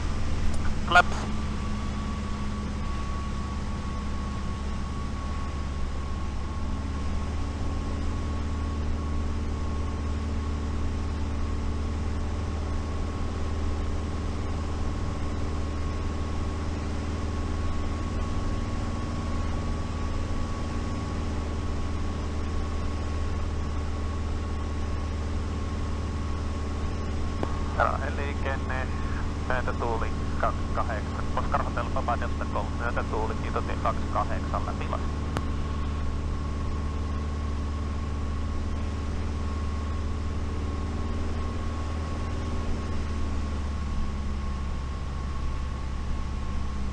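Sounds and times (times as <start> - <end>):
aircraft engine and propeller drone: 0.0 - 46.9.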